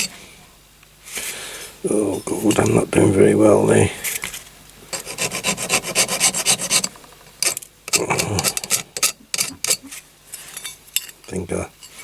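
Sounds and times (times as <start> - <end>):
hand file rasping on metal: 4.9 - 10.7.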